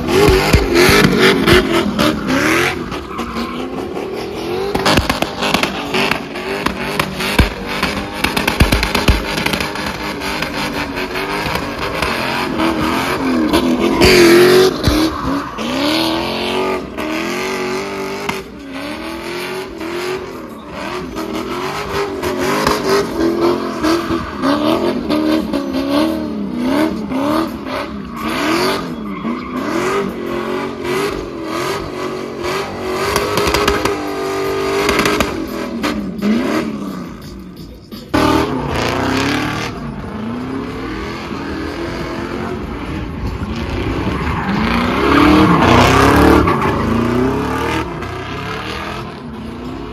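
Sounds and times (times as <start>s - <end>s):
car engines revving: 0.0s - 49.9s
tyre squeal: 27.7s - 30.3s.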